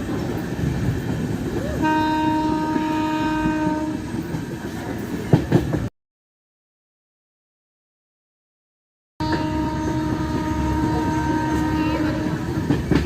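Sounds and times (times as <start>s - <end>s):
train wheels rumbling on track: 0.0s - 5.9s, 9.2s - 13.0s
train horn: 1.6s - 4.1s, 9.2s - 12.8s.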